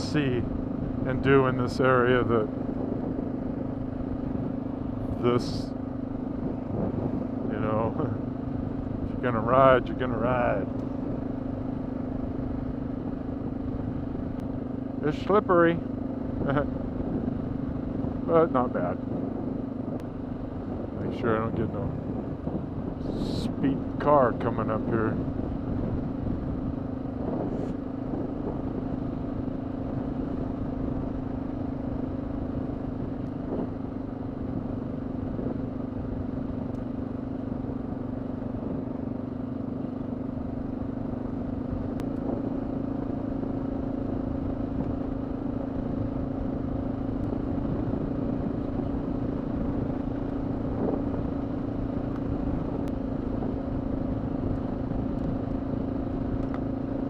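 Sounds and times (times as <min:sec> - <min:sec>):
low road rumble: 0:00.0 - 0:57.0
motorcycle engine running: 0:00.0 - 0:57.0.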